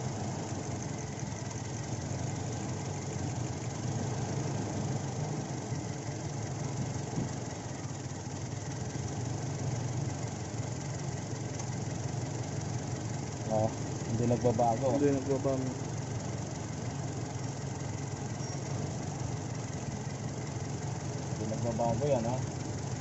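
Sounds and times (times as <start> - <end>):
car engine idling with misfire: 0.0 - 23.0.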